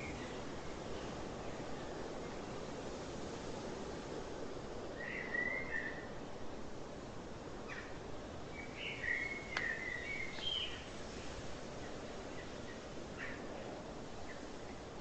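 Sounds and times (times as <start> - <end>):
steady background hiss: 0.0 - 15.0
bird calls: 8.6 - 10.9.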